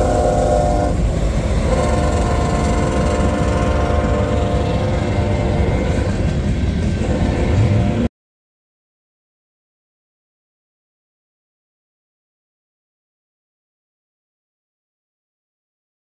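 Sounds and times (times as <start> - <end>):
freight train rumbling past: 0.0 - 8.1
train air horn: 0.0 - 8.1.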